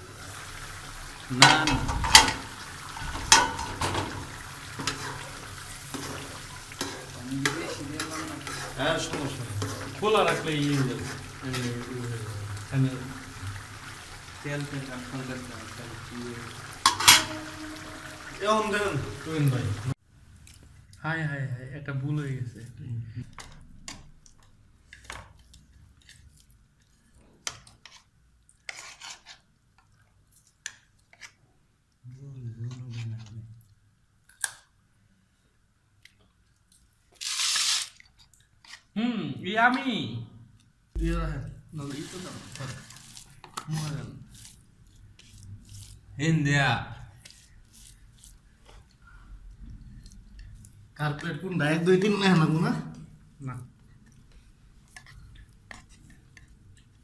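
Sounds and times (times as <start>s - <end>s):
utensil scraping cookware: 1.4s - 11.9s, 16.7s - 19.3s
utensils clinking on cookware: 3.1s - 5.3s, 16.8s - 18.8s
metal utensil clinking on pot: 16.8s - 18.2s
steady hiss: 41.0s - 48.0s.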